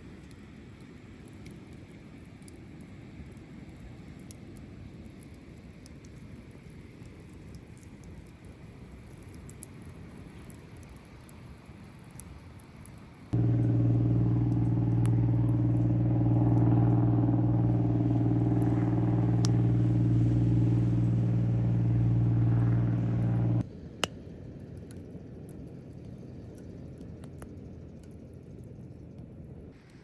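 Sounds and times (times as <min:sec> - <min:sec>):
low machine hum: 0:13.4 - 0:23.6.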